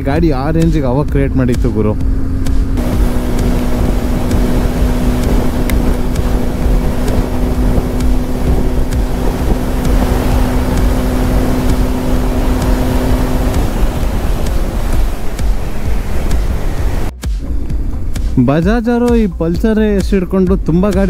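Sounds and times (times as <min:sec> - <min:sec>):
motorcycle engine cruising: 0:00.0 - 0:19.3
wind on microphone: 0:02.0 - 0:18.1.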